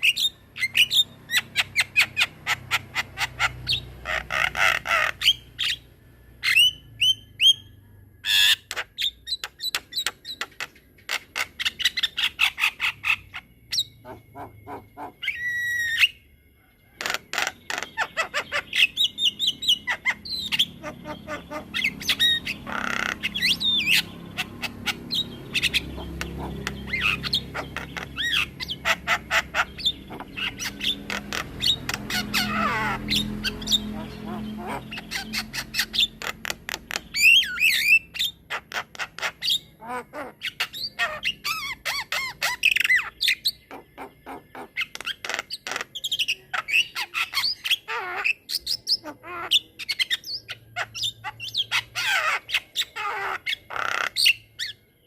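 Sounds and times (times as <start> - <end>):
bird chattering and whistling: 0.0 - 54.9.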